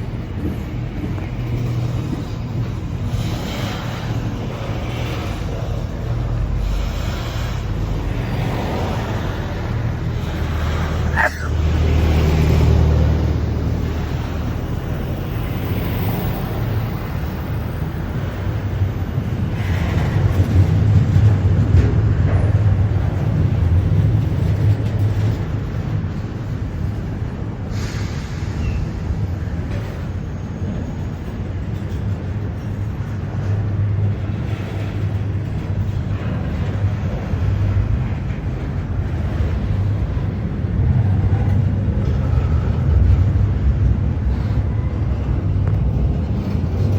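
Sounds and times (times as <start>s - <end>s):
train rumbling: 0.0s - 46.9s
wind-like rushing noise: 30.9s - 46.9s.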